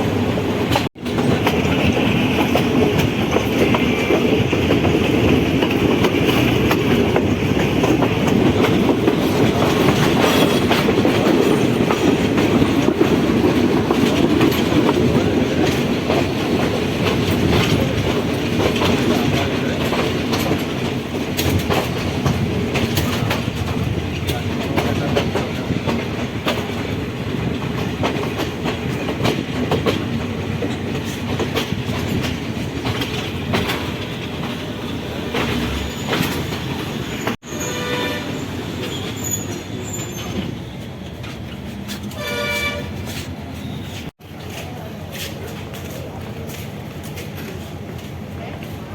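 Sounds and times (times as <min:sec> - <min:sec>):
train rumbling on track: 0:00.0 - 0:48.9
wheels clicking over rail joints: 0:00.6 - 0:37.4.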